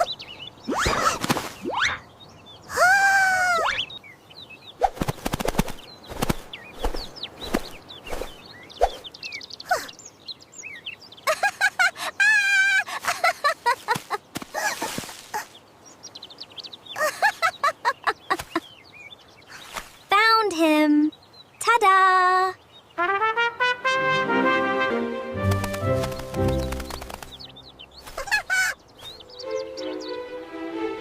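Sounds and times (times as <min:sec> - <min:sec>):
cartoon bird chirps and tweets: 0:03.5 - 0:04.0, 0:25.8 - 0:30.2.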